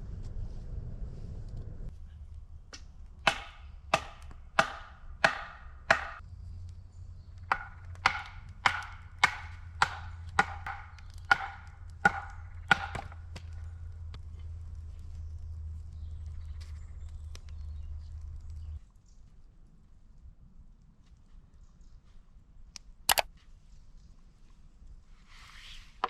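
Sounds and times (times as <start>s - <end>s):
axe chopping wood: 2.7s - 6.2s, 7.4s - 13.6s.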